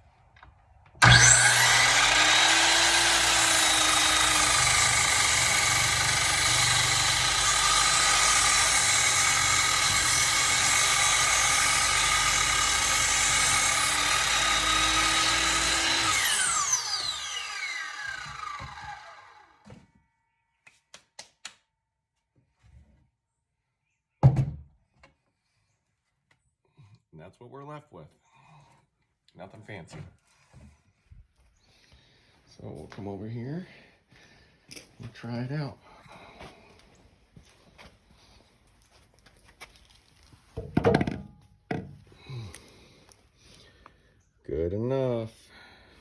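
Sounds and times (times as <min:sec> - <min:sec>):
miter saw cutting wood: 0:01.0 - 0:19.7.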